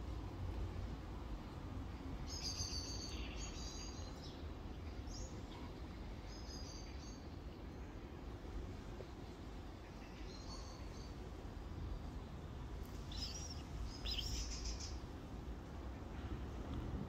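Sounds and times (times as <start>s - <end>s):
low outdoor rumble: 0.0s - 17.0s
small birds chirping: 13.0s - 15.1s.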